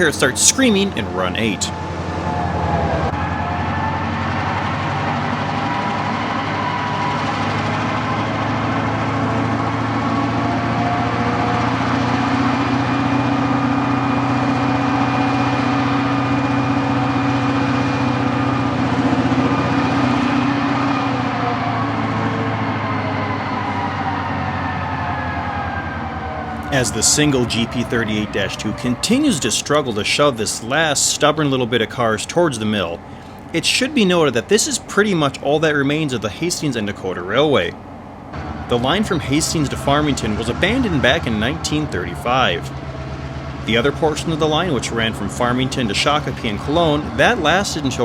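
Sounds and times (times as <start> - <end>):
diesel locomotive engine droning: 0.0 - 48.0.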